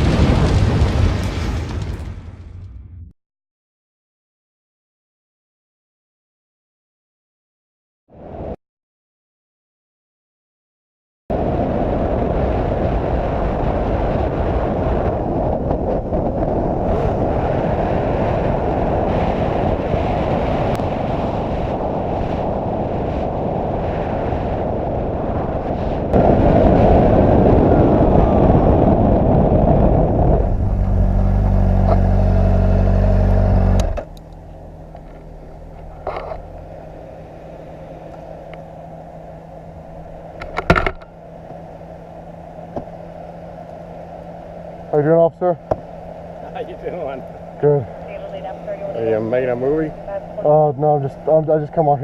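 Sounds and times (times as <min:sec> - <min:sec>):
motorcycle engine: 0:26.4 - 0:51.4
engine idling low: 0:28.0 - 0:52.0.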